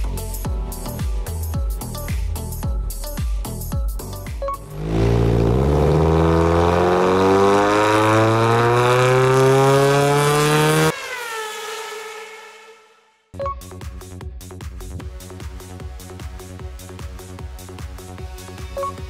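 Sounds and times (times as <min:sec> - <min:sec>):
car engine revving: 0:04.6 - 0:13.0.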